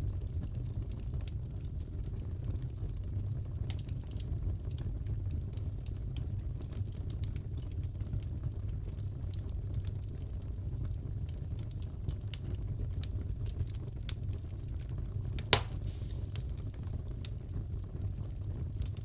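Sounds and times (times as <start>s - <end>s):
low rumble of fire: 0.0s - 19.0s
wood fire crackling: 0.0s - 19.0s
loud fire pop: 15.4s - 16.8s.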